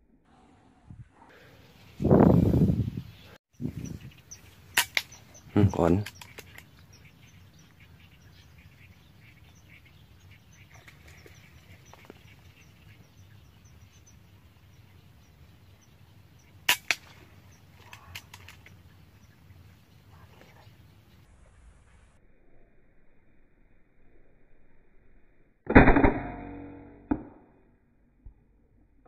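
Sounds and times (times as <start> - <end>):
faint high chirping: 1.5 - 22.9
air rifle cracks: 4.8 - 5.2, 16.7 - 17.2.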